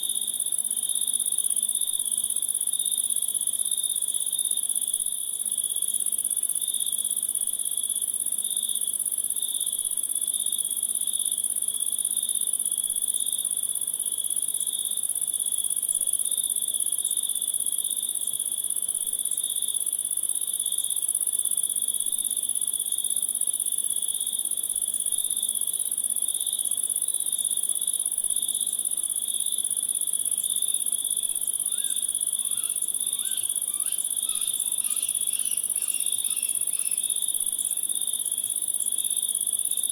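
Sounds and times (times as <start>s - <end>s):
high continuous insect trill: 0.0s - 39.9s
lower pulsing insect trill: 16.4s - 39.9s.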